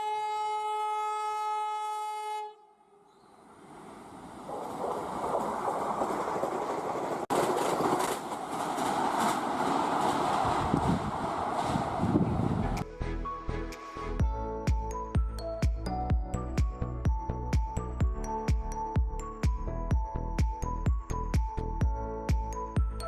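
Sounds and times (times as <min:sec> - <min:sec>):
train horn blast: 0:00.0 - 0:03.2
train wagons clattering over rail joints: 0:03.9 - 0:12.8.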